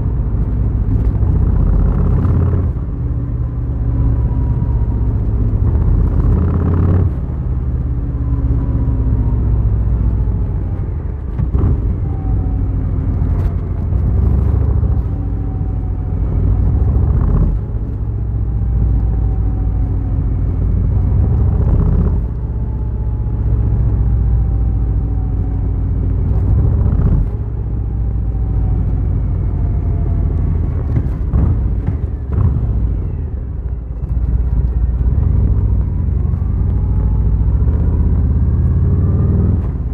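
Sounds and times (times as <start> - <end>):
motorcycle engine revving: 0.9 - 3.2, 4.1 - 7.8, 34.7 - 39.9.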